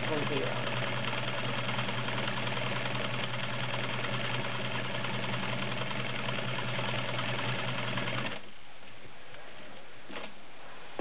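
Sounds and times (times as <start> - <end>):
sewing machine running: 0.0 - 8.4.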